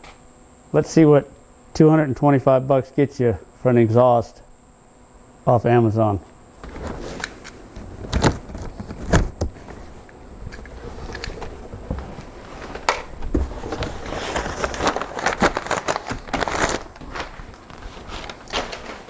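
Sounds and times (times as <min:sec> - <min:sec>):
crinkly rustling: 0:06.6 - 0:19.0.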